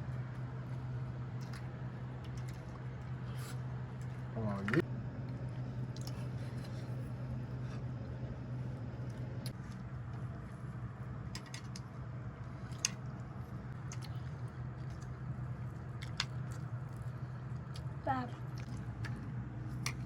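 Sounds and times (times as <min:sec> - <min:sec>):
low hum: 0:00.0 - 0:20.0
eating clicks and smacks: 0:13.7 - 0:17.0.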